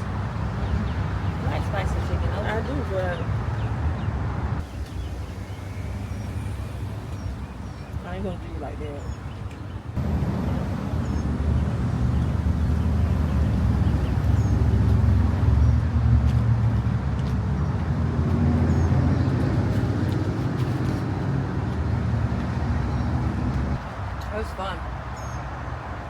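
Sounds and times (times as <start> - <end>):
road noise: 0.0 - 26.0
car engine hum: 9.9 - 23.9.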